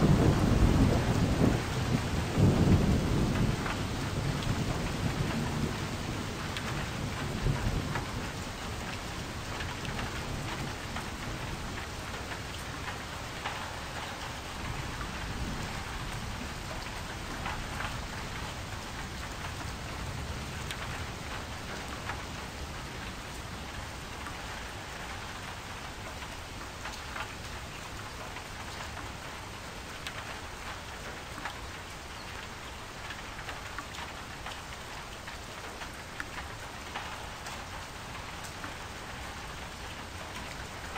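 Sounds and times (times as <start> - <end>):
thunder rumbling: 0.0 - 8.3
rain pattering: 0.0 - 40.9.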